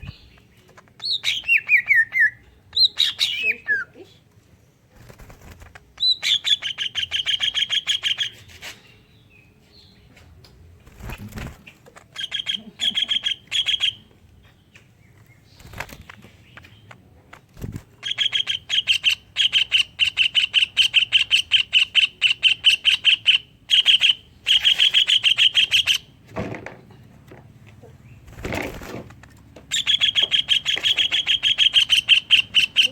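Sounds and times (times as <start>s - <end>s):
bird singing sharp repeated notes: 18.0s - 26.1s, 29.7s - 32.9s.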